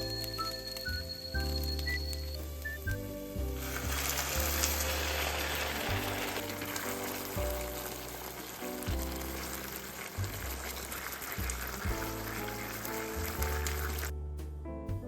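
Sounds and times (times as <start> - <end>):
soft background music: 0.0 - 15.0
food sizzling in a frying pan: 3.2 - 14.1.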